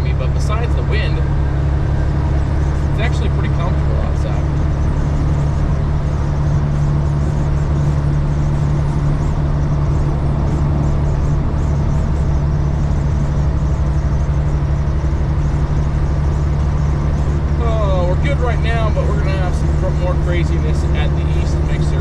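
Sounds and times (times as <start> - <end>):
diesel truck engine droning: 0.0 - 22.0
road noise: 0.0 - 22.0.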